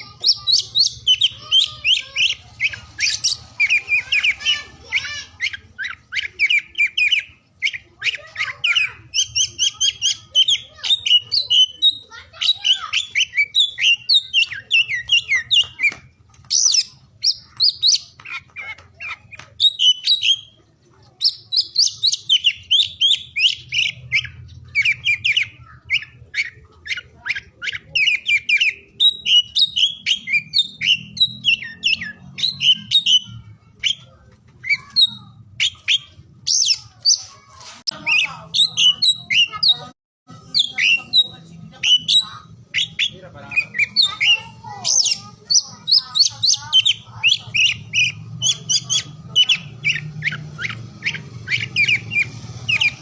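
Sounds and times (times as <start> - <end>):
bird singing whistled notes: 21.2 - 37.3, 37.9 - 53.0.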